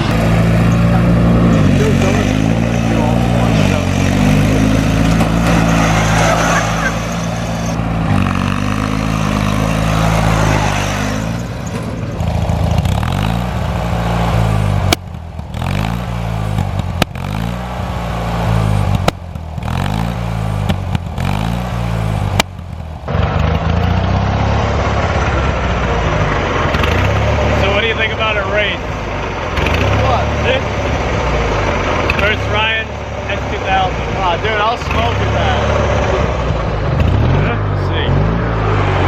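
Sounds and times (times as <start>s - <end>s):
small engine revving: 29.5s - 39.0s.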